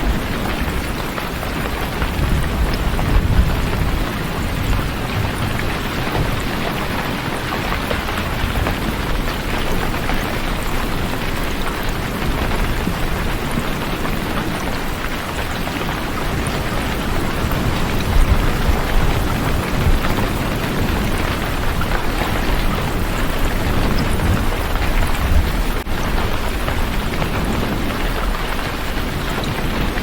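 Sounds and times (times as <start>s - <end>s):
heavy rain: 0.0s - 30.0s.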